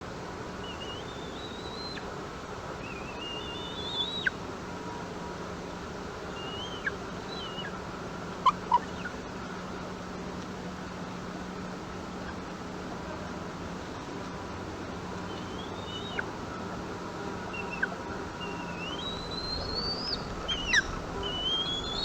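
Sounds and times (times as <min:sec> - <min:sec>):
whistled bird calls: 0:00.6 - 0:02.1, 0:02.8 - 0:04.4, 0:06.3 - 0:07.8, 0:15.3 - 0:16.3, 0:17.5 - 0:22.0.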